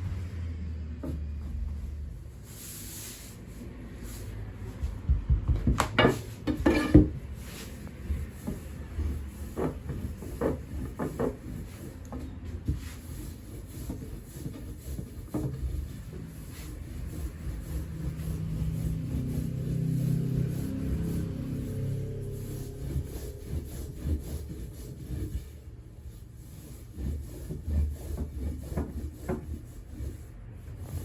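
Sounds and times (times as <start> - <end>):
knocks on wooden board: 5.1 - 7.1.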